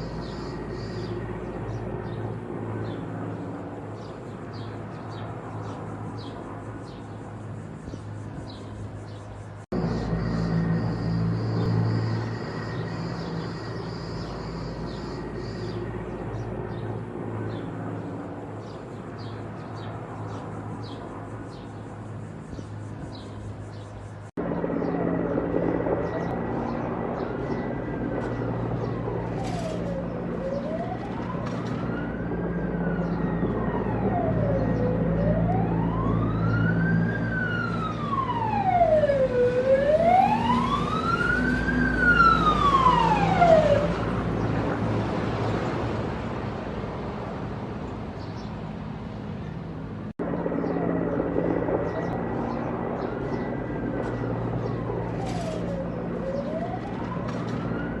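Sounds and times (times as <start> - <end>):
emergency siren wailing: 0.0 - 3.0, 9.7 - 18.2, 24.4 - 46.2, 50.2 - 58.0
engine hum: 0.0 - 58.0.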